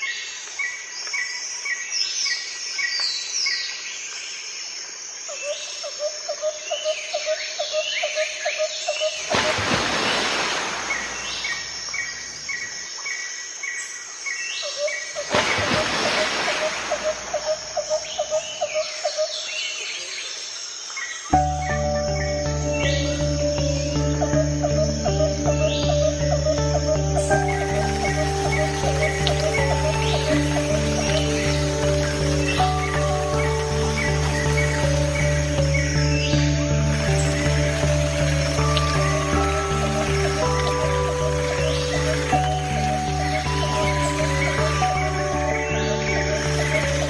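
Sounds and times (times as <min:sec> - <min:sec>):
birds singing and chirping: 0:05.4 - 0:47.0
music: 0:21.3 - 0:47.0.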